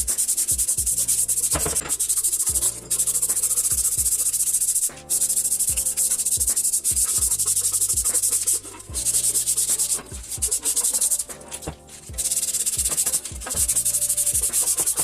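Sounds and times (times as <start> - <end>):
kick drum thumps: 0.0 - 1.8, 3.7 - 4.2, 5.7 - 8.2, 8.9 - 9.1, 10.1 - 10.6, 12.1 - 13.8
abrasive rubbing: 0.0 - 15.0
music with deep bass: 0.0 - 15.0.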